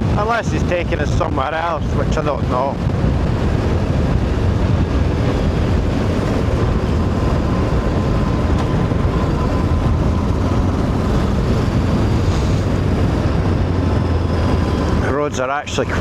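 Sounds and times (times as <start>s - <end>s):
wind rush over microphone: 0.0s - 16.0s
motorcycle engine running: 2.8s - 16.0s.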